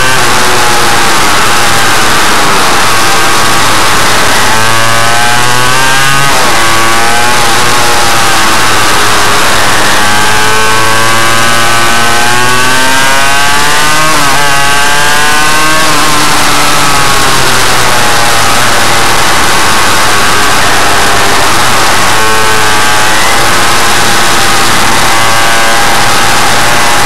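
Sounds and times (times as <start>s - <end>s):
loud steady hiss: 0.0s - 27.0s
two-stroke engine revving: 0.0s - 27.0s.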